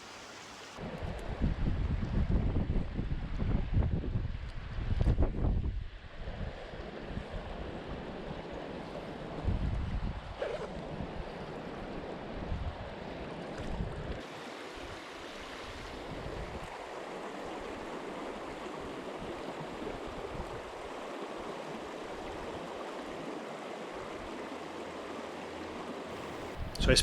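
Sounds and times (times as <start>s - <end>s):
river flowing: 0.0s - 0.8s, 14.2s - 27.0s
wind buffeting microphone: 1.0s - 7.8s, 9.3s - 11.4s, 26.2s - 27.0s.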